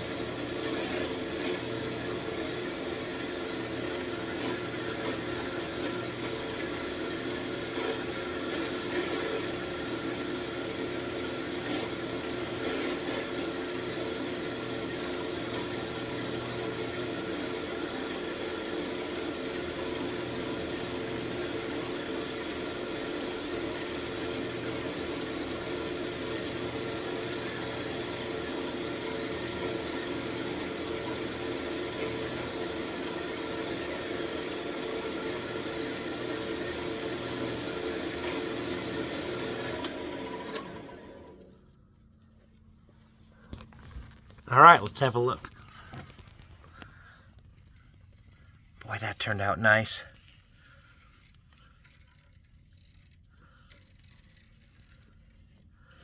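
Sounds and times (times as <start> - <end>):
wood lathe motor hum: 0.0 - 41.4.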